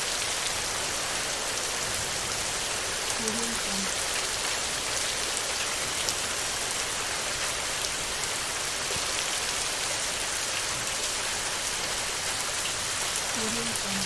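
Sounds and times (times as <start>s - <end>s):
heavy rain on metal roof: 0.0s - 14.0s.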